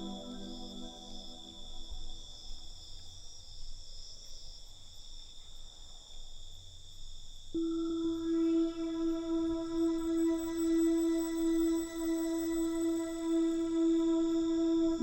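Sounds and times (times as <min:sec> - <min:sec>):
sustained ambient music tone: 0:00.0 - 0:03.0, 0:07.6 - 0:15.0
crickets chirping: 0:00.0 - 0:15.0.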